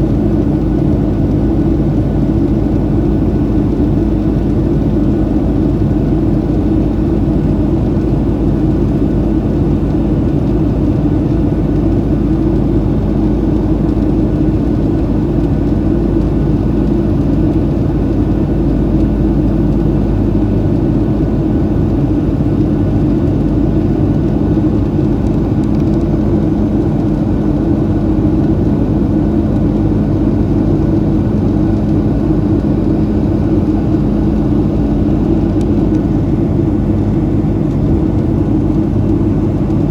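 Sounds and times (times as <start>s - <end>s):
airplane cabin engine drone: 0.0s - 39.9s.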